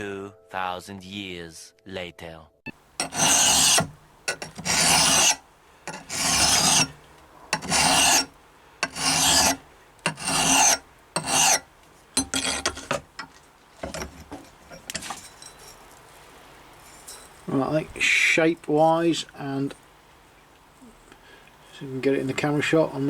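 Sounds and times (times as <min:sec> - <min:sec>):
file scraping steel edge: 0:03.0 - 0:15.7.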